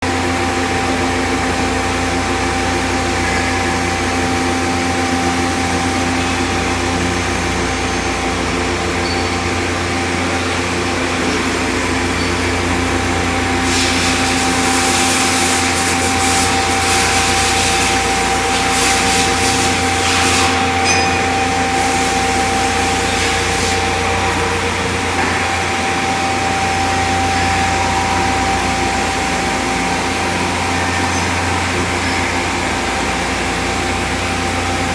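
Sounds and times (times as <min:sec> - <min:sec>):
floor-cleaning machine whine: 0:00.0 - 0:34.9
loud hiss: 0:13.6 - 0:20.6.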